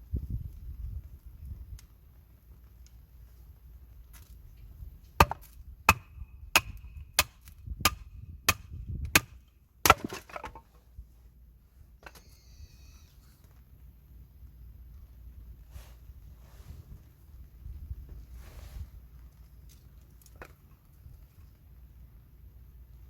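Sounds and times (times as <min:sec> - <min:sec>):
axe chopping firewood: 0:05.1 - 0:10.7.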